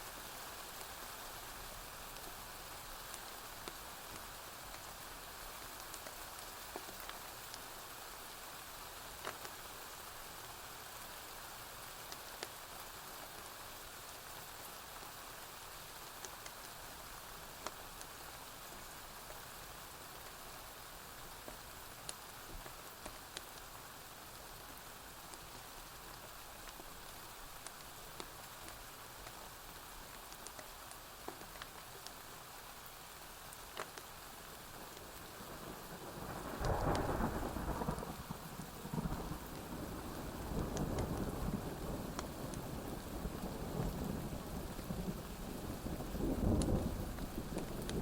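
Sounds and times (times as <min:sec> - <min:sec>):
rain on a roof: 0:00.0 - 0:48.0.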